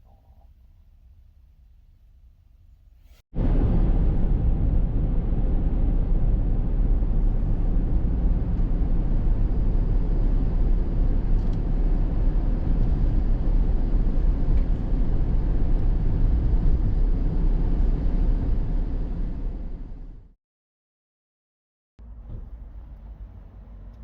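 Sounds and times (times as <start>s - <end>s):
vehicle rumble: 3.4s - 20.3s, 22.0s - 24.0s.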